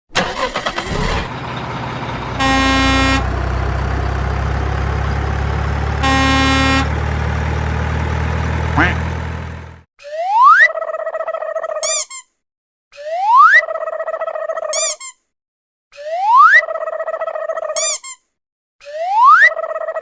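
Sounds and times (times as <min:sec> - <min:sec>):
low engine hum: 0:00.2 - 0:09.9
horn honks: 0:02.3 - 0:03.5, 0:05.8 - 0:07.2, 0:08.6 - 0:09.7.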